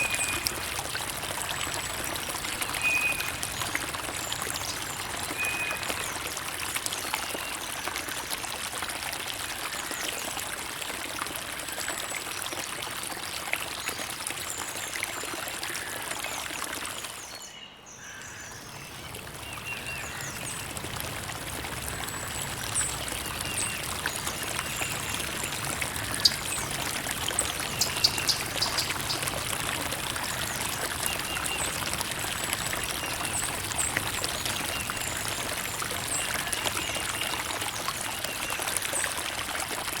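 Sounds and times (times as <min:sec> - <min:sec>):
creek water trickling: 0:00.0 - 0:40.0.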